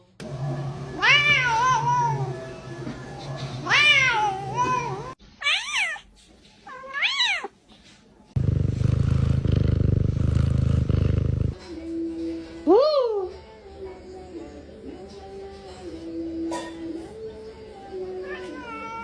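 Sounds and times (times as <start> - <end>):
loud low buzzing hum: 0.1 - 5.1, 8.4 - 11.6
cat meowing: 1.0 - 2.3, 3.6 - 6.1, 6.7 - 7.5.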